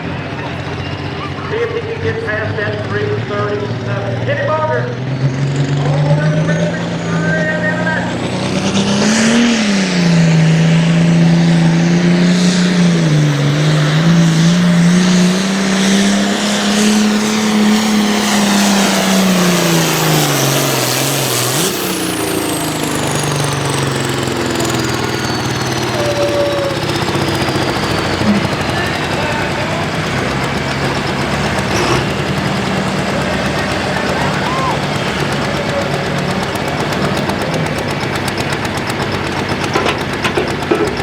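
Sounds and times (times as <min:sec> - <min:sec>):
tractor diesel engine roaring: 0:00.0 - 0:41.0
turbo whistle winding down: 0:15.2 - 0:30.0, 0:34.0 - 0:35.8.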